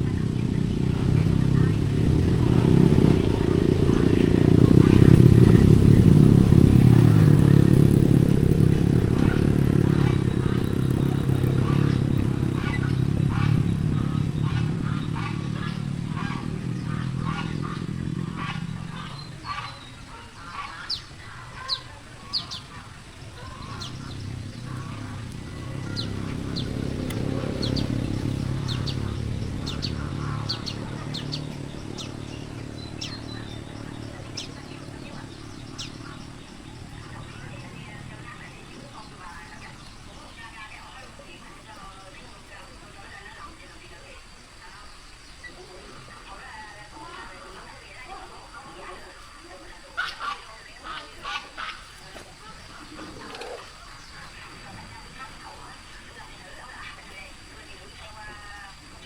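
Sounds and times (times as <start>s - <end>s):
engine running: 0.0s - 43.4s.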